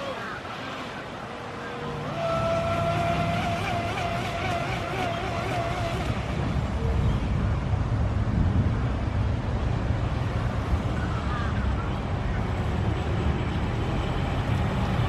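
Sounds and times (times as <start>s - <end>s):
boat motor running: 0.0s - 15.0s
wind and water rushing: 0.0s - 15.0s.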